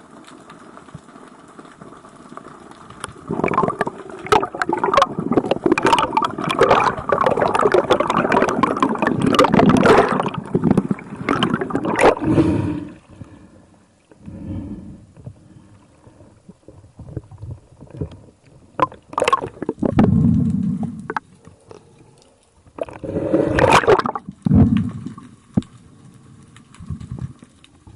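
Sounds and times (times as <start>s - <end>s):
water splashing and gurgling: 2.9s - 13.1s, 16.5s - 21.3s, 22.6s - 25.7s.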